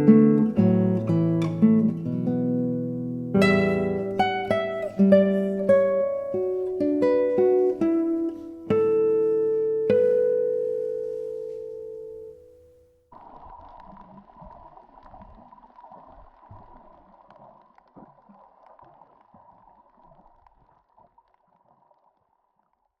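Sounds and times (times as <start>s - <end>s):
underwater gurgling: 13.1s - 23.0s
crackling clicks: 13.2s - 22.8s.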